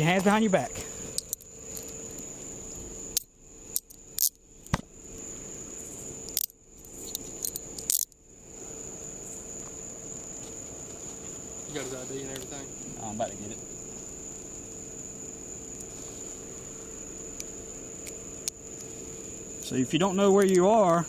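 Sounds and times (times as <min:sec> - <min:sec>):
handcuffs clicking shut: 0:07.1 - 0:08.1.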